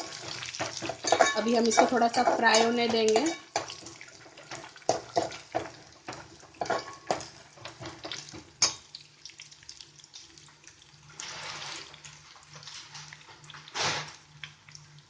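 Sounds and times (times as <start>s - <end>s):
food frying in oil: 0.0s - 15.0s.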